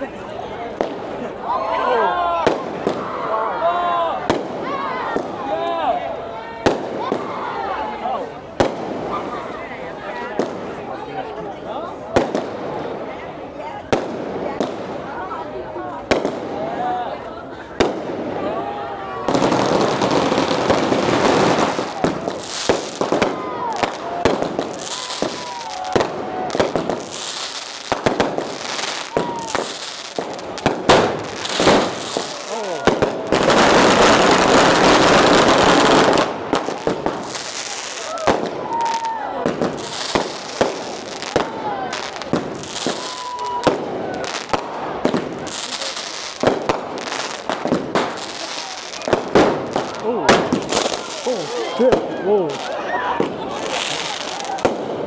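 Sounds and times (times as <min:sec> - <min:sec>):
firecrackers banging: 0:08.5 - 0:09.4, 0:12.1 - 0:13.2, 0:13.8 - 0:17.0, 0:17.6 - 0:55.0.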